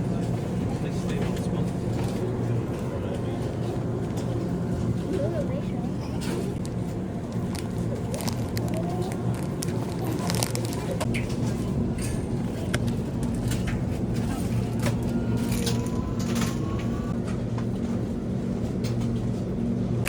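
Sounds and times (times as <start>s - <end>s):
irregular clicks and clatter: 6.2s - 16.6s.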